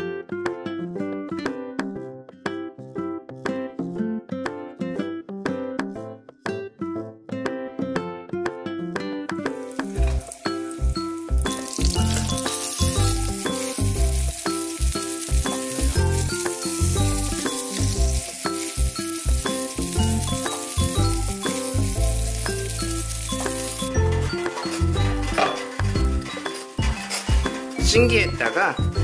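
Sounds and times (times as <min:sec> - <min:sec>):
oil sizzling in frying pan: 0:09.5 - 0:28.0.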